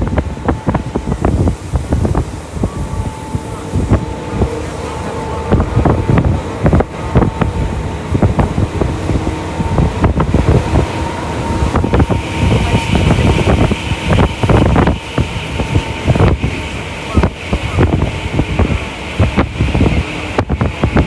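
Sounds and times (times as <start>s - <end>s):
rail joint clacks: 0.0s - 21.0s
steady whine: 0.0s - 21.0s
train wheels rumbling on rail: 0.0s - 21.0s
high hiss: 0.9s - 4.7s.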